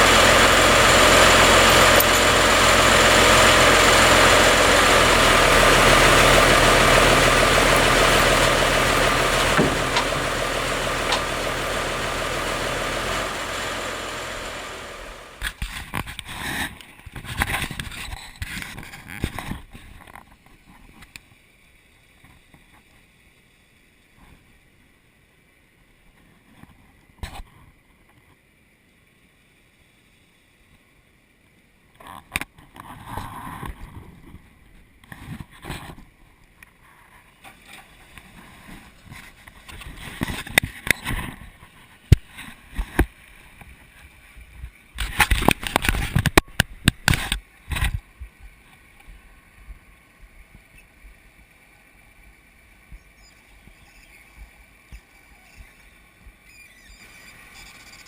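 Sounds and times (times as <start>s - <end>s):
machinery engine humming: 0.0s - 15.6s
short knocks and clunks: 4.9s - 15.4s.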